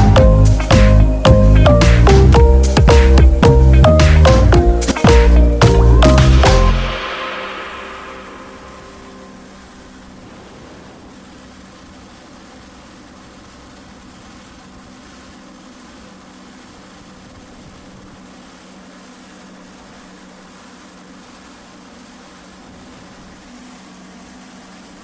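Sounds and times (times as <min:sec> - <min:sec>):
wind blowing: 0:00.0 - 0:12.9
low steady hum: 0:00.0 - 0:25.0.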